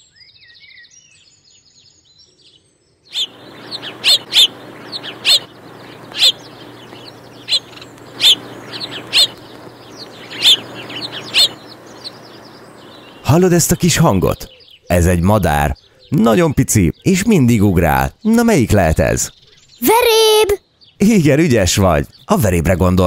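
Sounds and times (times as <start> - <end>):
sparrows chirping: 0.0 - 23.0
background hiss: 3.1 - 16.5
low hum: 3.2 - 14.2.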